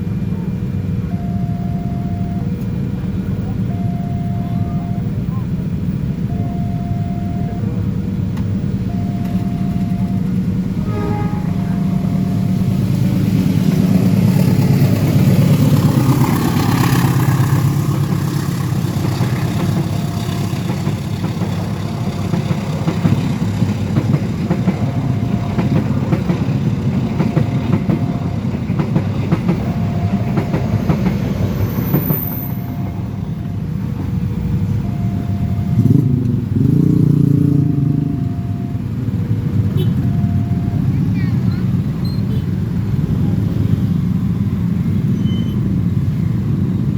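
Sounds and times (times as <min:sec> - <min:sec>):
train rumbling past: 0:00.0 - 0:46.9
wheels clattering on rails: 0:07.6 - 0:38.2
short repeating tone: 0:08.8 - 0:13.0, 0:18.3 - 0:23.4.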